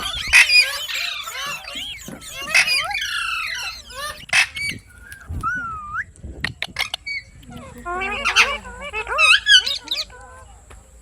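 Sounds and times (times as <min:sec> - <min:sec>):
parakeet harsh screeches: 0:00.0 - 0:04.8
parakeets chattering: 0:00.0 - 0:05.3, 0:06.4 - 0:11.0.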